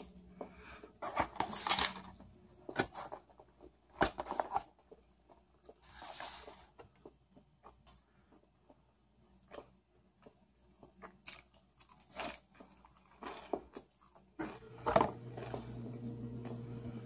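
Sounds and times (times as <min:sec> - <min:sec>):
crunching and chewing lettuce: 0:06.9 - 0:17.0
steady low hum: 0:14.4 - 0:17.0.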